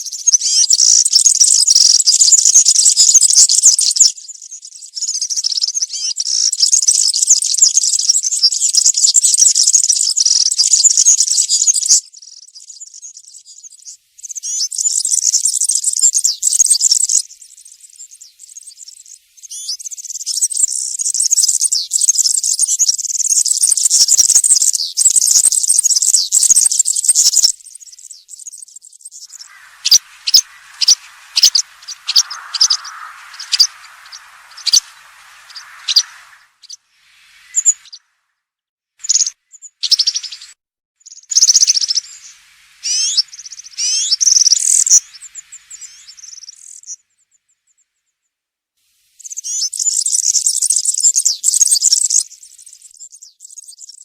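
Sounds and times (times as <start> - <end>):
bird singing jingling song: 24.7 - 38.0
faint hiss: 29.2 - 38.2, 41.3 - 47.4, 48.8 - 52.9.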